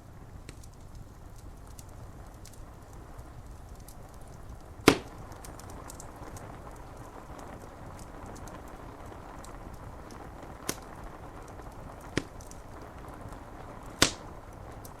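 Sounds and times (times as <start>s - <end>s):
fire crackling and popping: 0.0s - 15.0s
rain on window glass: 0.0s - 15.0s.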